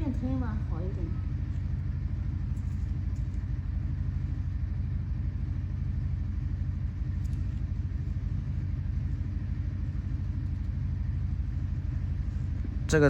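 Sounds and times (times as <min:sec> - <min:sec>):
low mechanical rumble: 0:00.0 - 0:13.0
faint ticks: 0:07.2 - 0:07.7.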